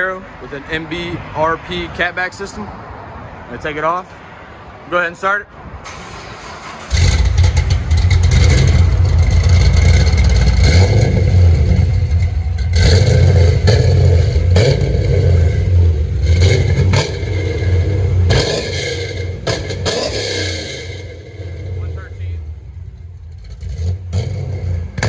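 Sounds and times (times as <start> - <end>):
car engine revving: 5.8 - 25.0.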